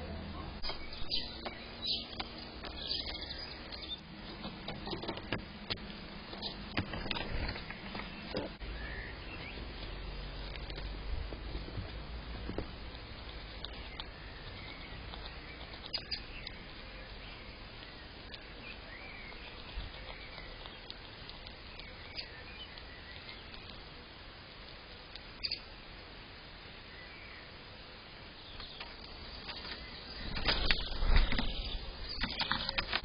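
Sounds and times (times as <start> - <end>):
steady hiss: 0.0 - 33.0
faint bird chirps: 0.3 - 4.1, 7.6 - 10.1, 13.4 - 23.9, 25.2 - 25.8.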